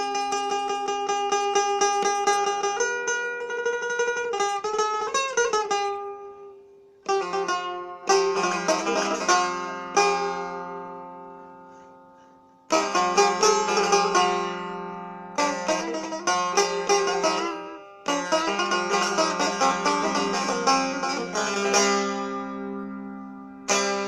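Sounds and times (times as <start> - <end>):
plucked lute notes: 0.0 - 24.0.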